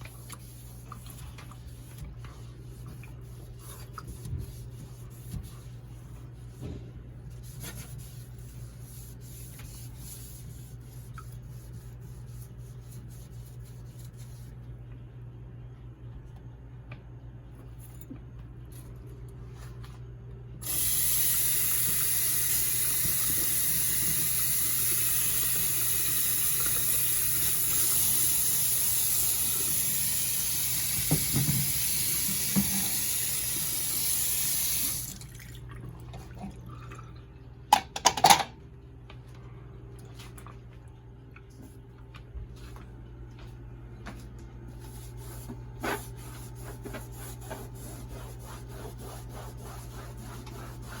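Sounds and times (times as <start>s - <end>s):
tap water running into sink: 20.7s - 35.6s.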